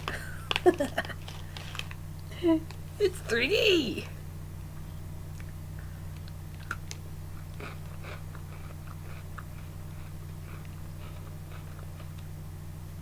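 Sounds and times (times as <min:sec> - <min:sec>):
crunchy chewing: 0:00.0 - 0:02.9, 0:05.3 - 0:12.5
steady low hum: 0:00.0 - 0:13.0.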